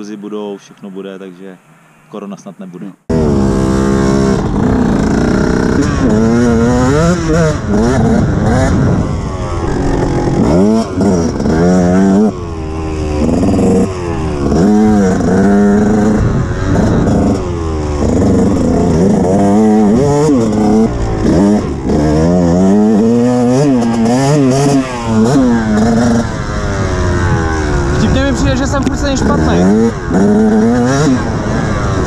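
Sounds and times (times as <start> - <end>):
motorcycle engine revving: 3.0 - 32.0.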